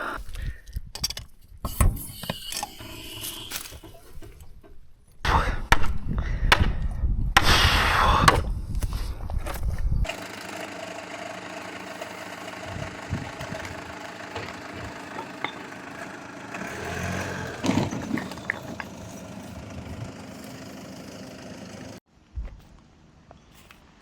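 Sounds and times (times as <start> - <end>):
diesel engine idling: 10.1 - 22.0.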